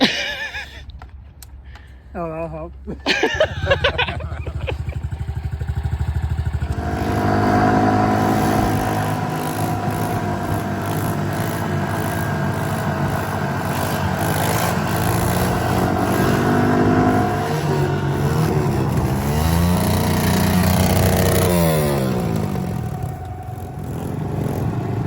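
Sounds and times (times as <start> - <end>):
small motorbike engine running: 3.3 - 25.0.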